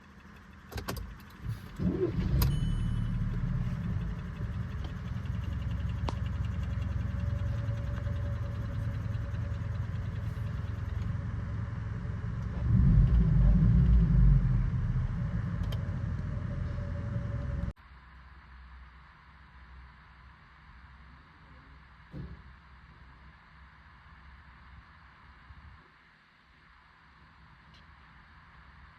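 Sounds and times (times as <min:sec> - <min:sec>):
car engine starting and running: 0:00.0 - 0:17.8.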